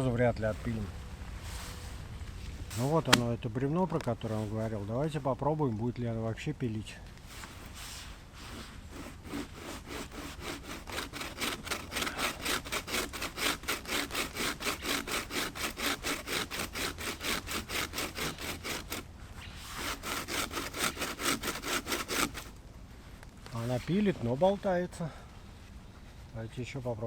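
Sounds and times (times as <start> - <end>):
bow saw rasping through log: 2.7 - 3.3, 7.3 - 22.5.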